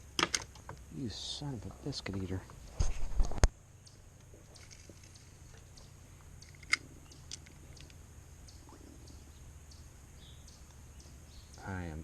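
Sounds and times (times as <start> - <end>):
faint low hum: 0.0 - 12.0
small sharp clicks: 4.6 - 8.0.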